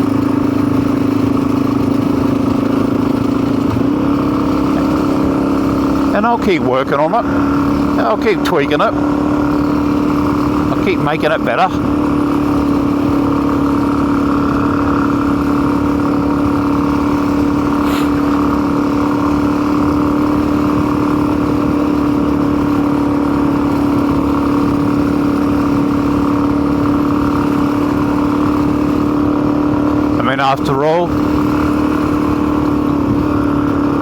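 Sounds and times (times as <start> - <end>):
motorcycle engine cruising: 0.0 - 34.0.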